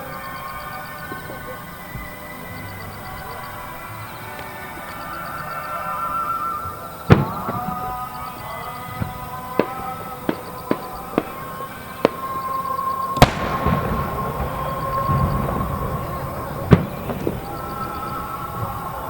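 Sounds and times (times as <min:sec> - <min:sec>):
rolling crackle: 0:04.3 - 0:19.0
firework shells bursting: 0:08.9 - 0:19.0.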